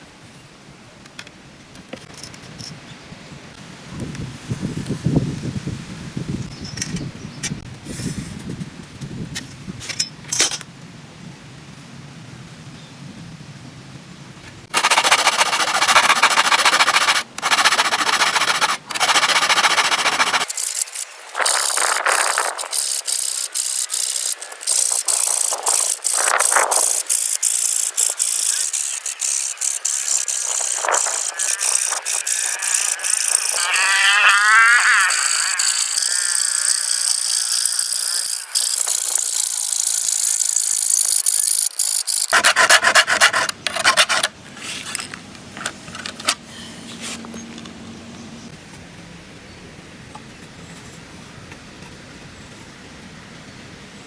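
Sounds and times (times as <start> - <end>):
file rasping on saw teeth: 14.7 - 44.3.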